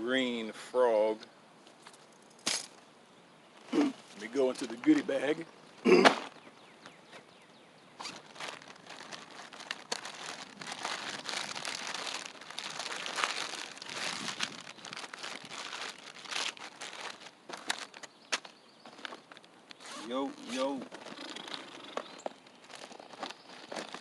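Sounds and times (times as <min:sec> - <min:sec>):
plastic bags crinkling: 0:08.0 - 0:24.0.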